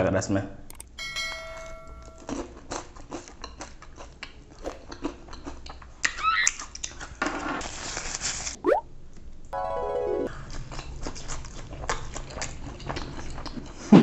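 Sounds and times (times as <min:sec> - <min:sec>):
chewing with wet mouth clicks: 0:02.3 - 0:07.1, 0:10.5 - 0:13.9.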